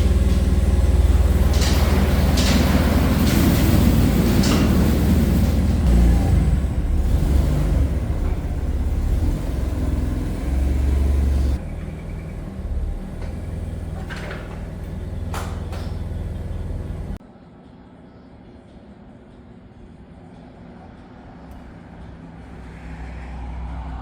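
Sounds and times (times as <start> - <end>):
large engine rumbling: 0.0 - 17.2.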